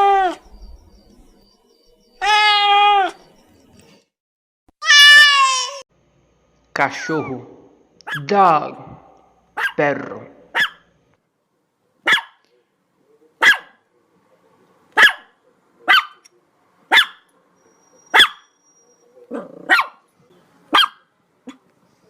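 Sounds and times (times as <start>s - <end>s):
dog barking: 8.0s - 8.3s, 9.6s - 9.8s, 10.5s - 10.9s, 12.0s - 12.5s, 13.4s - 13.8s, 15.0s - 16.2s, 16.9s - 17.4s, 18.1s - 18.5s, 19.3s - 20.0s, 20.7s - 21.6s.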